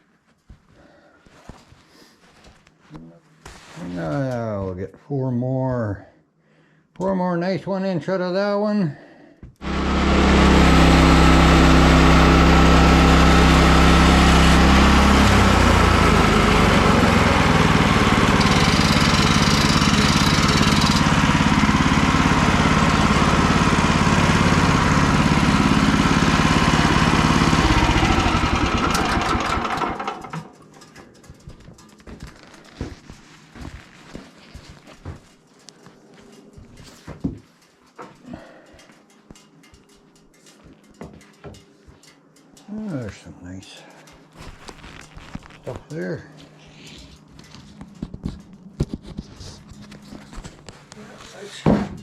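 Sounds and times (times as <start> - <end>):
bandsaw mill engine sawing: 9.6 - 30.6.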